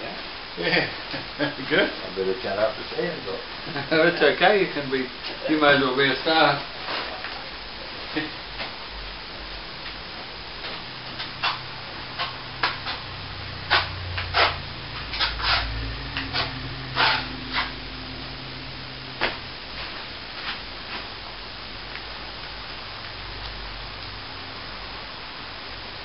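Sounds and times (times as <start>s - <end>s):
low steady hum: 0.0s - 26.0s
plastering tools scraping wall: 13.7s - 17.8s.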